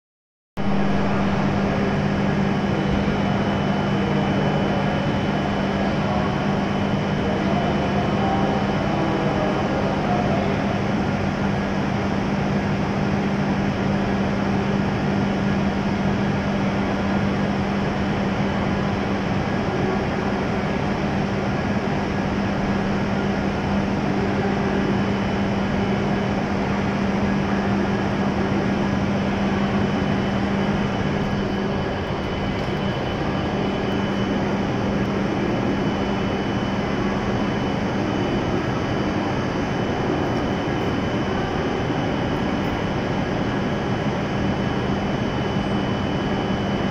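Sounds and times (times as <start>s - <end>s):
faint high whine: 0.6s - 46.9s
train equipment humming: 28.5s - 39.3s.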